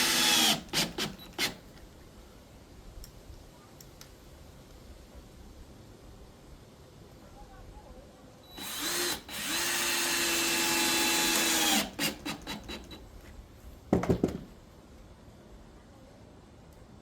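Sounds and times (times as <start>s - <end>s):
power drill driving a screw: 0.0s - 1.6s, 8.6s - 13.0s.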